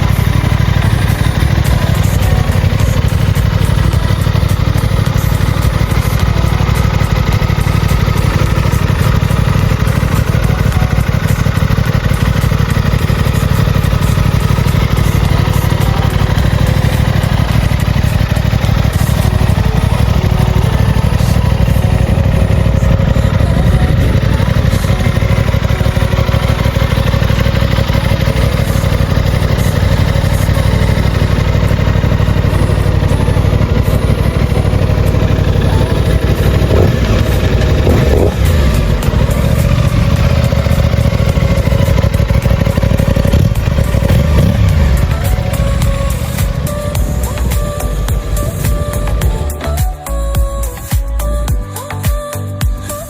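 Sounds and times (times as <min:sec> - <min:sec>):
motorcycle engine idling: 0:00.0 - 0:53.0
engine revving lightly: 0:35.7 - 0:39.9.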